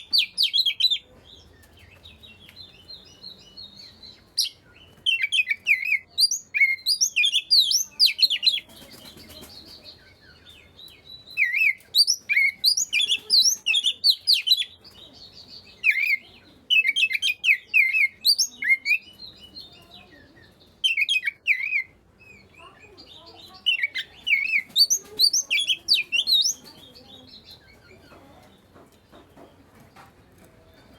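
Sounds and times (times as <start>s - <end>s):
bird singing whistled notes: 2.0s - 9.4s, 10.0s - 14.9s, 15.5s - 27.8s.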